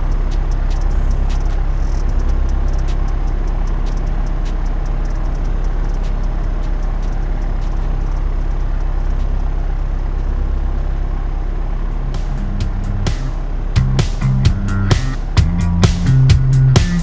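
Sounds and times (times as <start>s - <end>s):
faint clicks: 0.0s - 11.1s.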